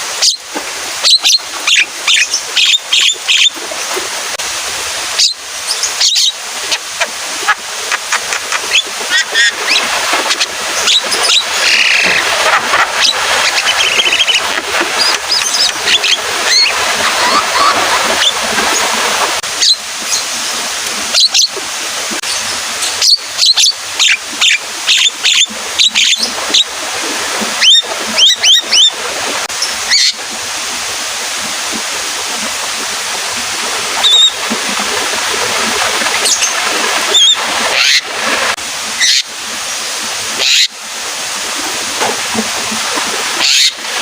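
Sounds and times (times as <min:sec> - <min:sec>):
rain hissing: 0:03.6 - 0:23.2.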